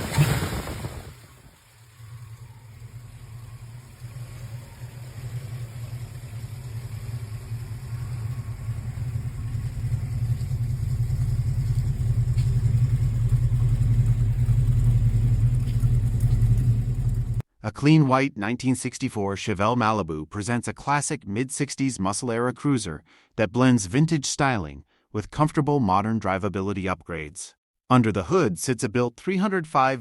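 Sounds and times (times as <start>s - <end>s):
car engine deep rumble: 0.0s - 17.4s.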